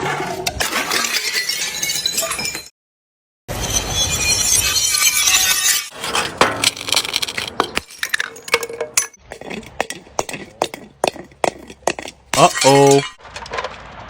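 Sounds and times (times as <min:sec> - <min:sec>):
glass shards clinking: 0:00.5 - 0:02.7, 0:04.7 - 0:09.2, 0:12.4 - 0:13.2
glass bottle shattering: 0:00.6 - 0:02.7, 0:04.8 - 0:09.2.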